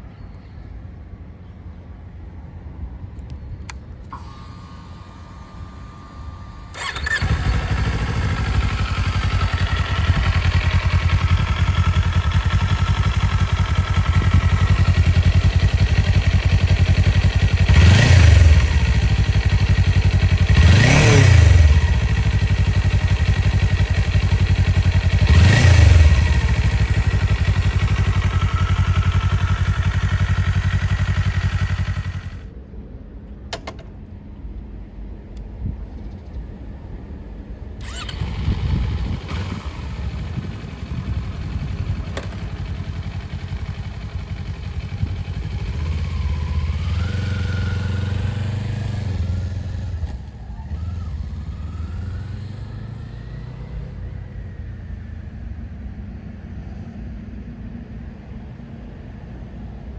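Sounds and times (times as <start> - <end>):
engine revving: 4.1 - 32.4, 37.8 - 54.6
engine starting and idling: 4.1 - 32.5, 37.8 - 54.2.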